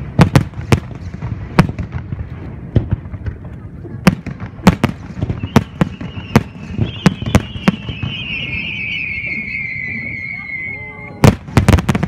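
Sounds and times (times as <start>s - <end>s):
whistle of rising shells: 5.3s - 11.4s.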